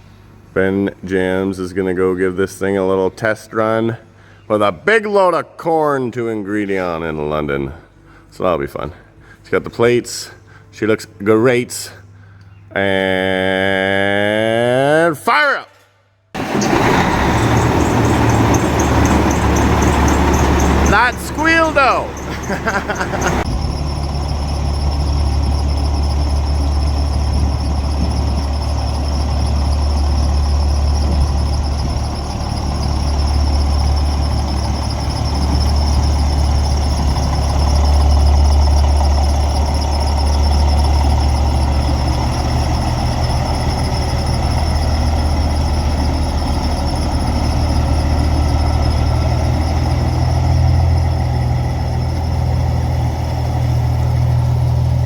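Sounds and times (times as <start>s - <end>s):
diesel truck engine idling: 16.4s - 55.0s
high-pitched squeal: 16.4s - 55.0s.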